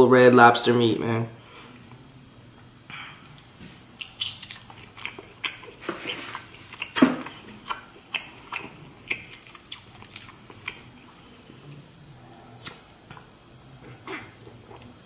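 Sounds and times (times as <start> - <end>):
person chewing with lip-smacking: 3.3 - 11.9, 12.5 - 15.0.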